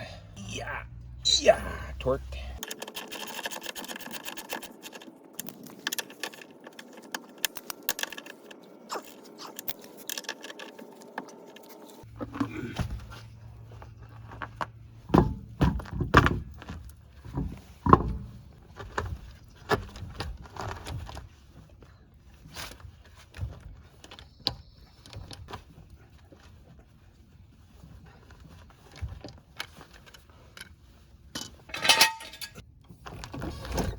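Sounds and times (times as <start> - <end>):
low steady hum: 31.3 - 33.2
hand tools clanking on metal: 31.4 - 32.6.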